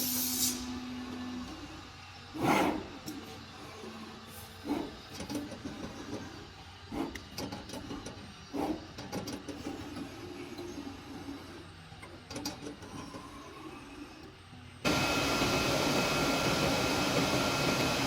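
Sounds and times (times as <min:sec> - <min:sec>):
cutting machine running: 0:14.8 - 0:18.0.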